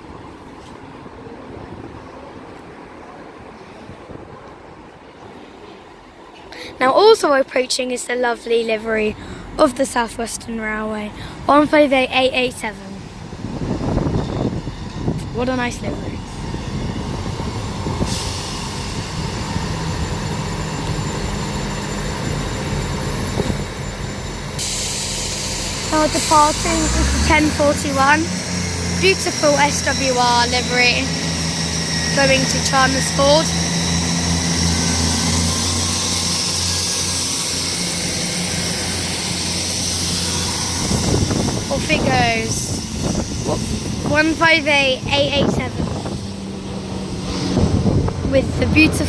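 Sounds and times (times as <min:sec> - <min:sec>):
diesel train engine drone: 0:00.0 - 0:49.0
hiss: 0:17.7 - 0:22.0, 0:24.6 - 0:30.3.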